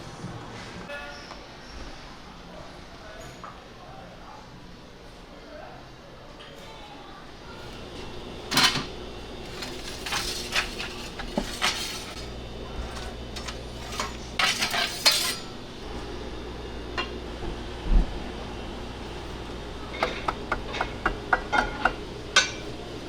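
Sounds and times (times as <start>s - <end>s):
metal utensils and dishes clinking: 8.5s - 15.6s.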